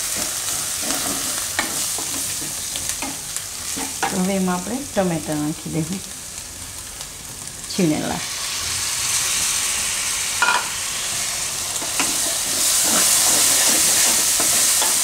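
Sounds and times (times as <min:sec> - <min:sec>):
food sizzling in hot oil: 0:00.0 - 0:15.0
spatula scraping a pan: 0:00.1 - 0:03.2, 0:11.8 - 0:15.0.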